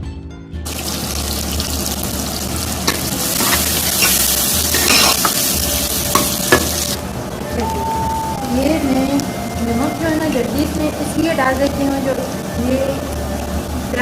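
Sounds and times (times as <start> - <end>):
onions sizzling in oil: 0.7 - 7.8
spoon knocking against pot: 6.1 - 6.8.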